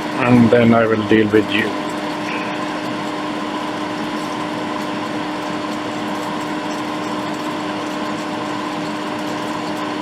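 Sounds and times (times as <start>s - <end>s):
steady hum: 0.0s - 4.8s.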